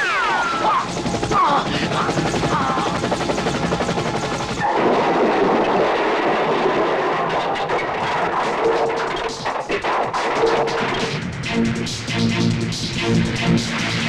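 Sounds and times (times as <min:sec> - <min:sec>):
fast steady rattling: 0:00.0 - 0:14.0.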